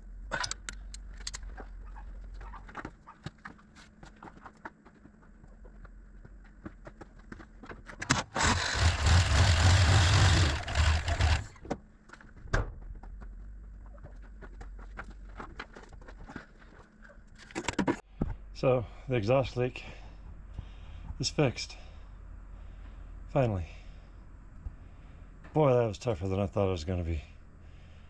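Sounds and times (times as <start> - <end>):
engine starting and idling: 8.1 - 11.6.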